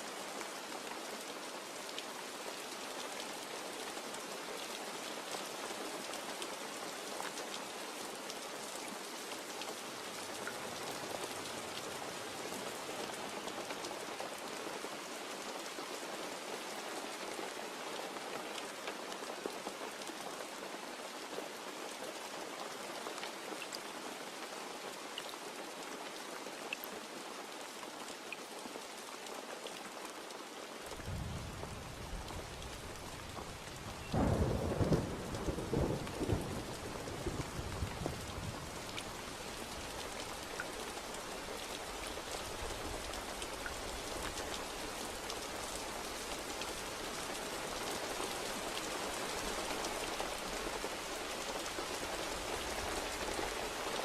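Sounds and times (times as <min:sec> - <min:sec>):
heavy rain falling: 0:00.0 - 0:26.4, 0:29.4 - 0:54.0
thunder rumbling: 0:31.0 - 0:39.2.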